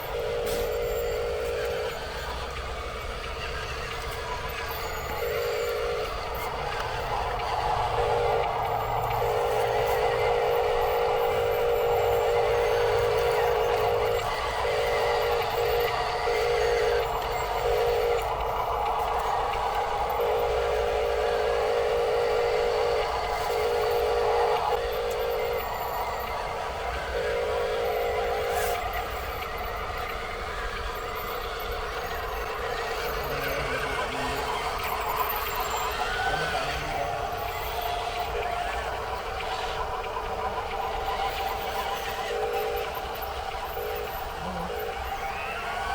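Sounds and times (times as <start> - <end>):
toy electric motor whining: 0.0 - 45.9.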